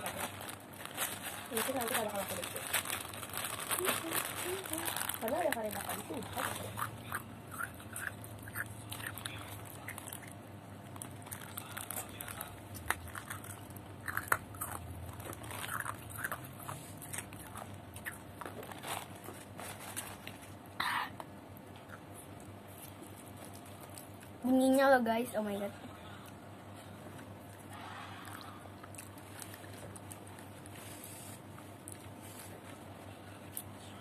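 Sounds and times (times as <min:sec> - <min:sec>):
person chewing: 0:06.6 - 0:10.4, 0:11.0 - 0:18.8, 0:27.4 - 0:32.4.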